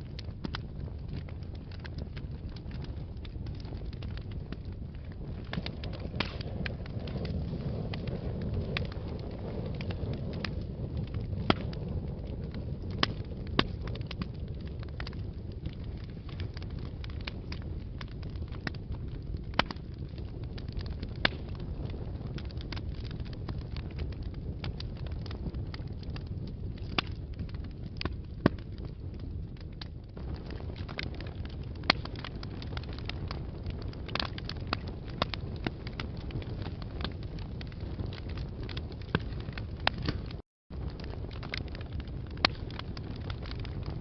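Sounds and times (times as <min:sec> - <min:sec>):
fire burning in a fireplace: 0:00.0 - 0:44.0
wood fire crackling and popping: 0:00.0 - 0:44.0.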